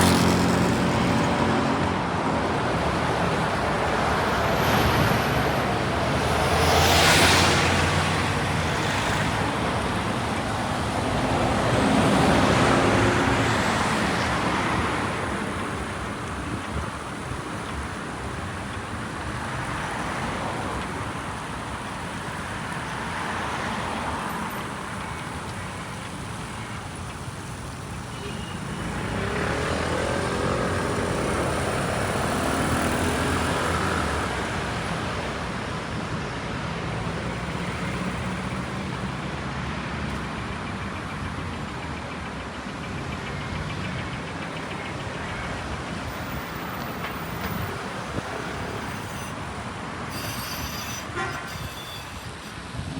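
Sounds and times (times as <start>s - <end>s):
loud vehicle passing: 0.0s - 15.5s, 28.8s - 39.6s
cars passing: 0.0s - 52.9s.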